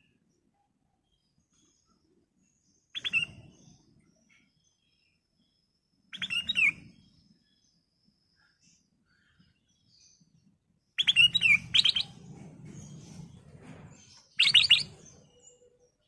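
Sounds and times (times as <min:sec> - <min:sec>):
bird singing whistles: 0:02.9 - 0:03.8, 0:06.1 - 0:07.0, 0:11.0 - 0:12.2, 0:14.4 - 0:15.6.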